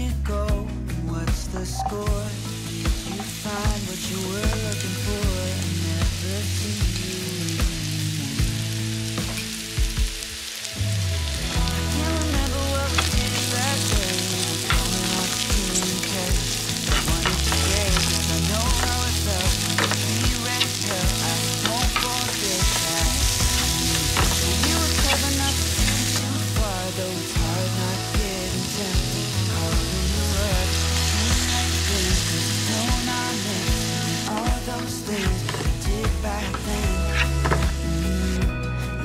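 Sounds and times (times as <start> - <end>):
food sizzling in oil: 1.9 - 38.4
spatula scraping pan: 12.8 - 26.3.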